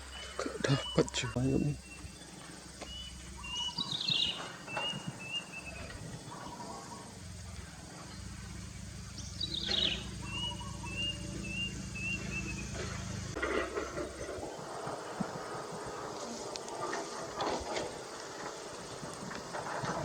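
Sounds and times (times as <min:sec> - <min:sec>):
bird chirps: 0:00.0 - 0:14.7.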